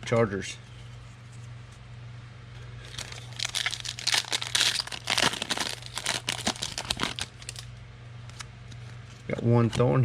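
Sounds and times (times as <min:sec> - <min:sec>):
foil pack tearing and crinkling: 0:02.9 - 0:07.7.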